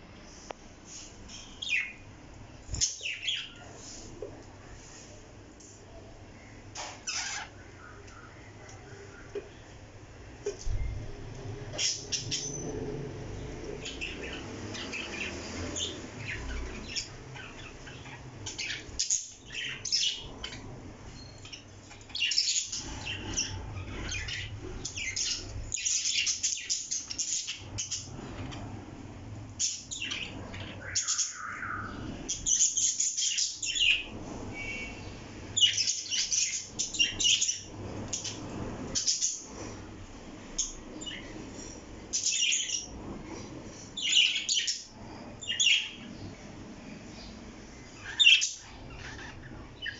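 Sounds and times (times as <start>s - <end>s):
parrot chirping and squawking: 6.8s - 7.7s, 21.4s - 28.1s, 29.6s - 35.0s, 35.6s - 39.5s, 48.0s - 49.9s.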